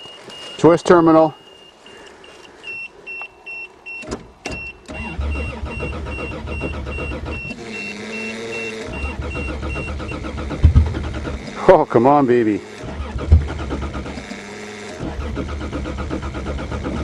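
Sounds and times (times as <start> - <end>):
warning chime beeping: 0.0 - 10.3
starter cranking engine: 4.0 - 17.0.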